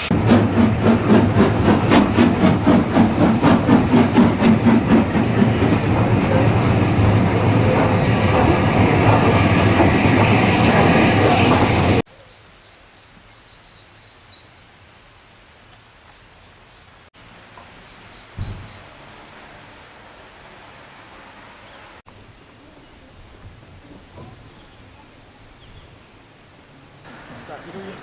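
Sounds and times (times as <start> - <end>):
steam train running past: 0.0 - 12.0, 27.0 - 28.0
small birds chirping: 17.8 - 19.0, 27.2 - 28.0.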